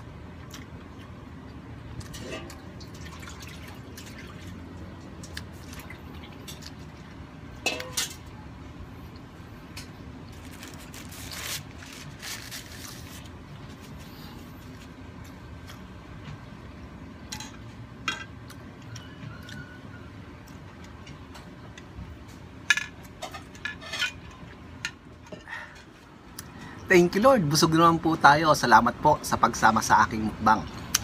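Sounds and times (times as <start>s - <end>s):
man chewing food: 0.3s - 2.1s, 13.3s - 16.4s.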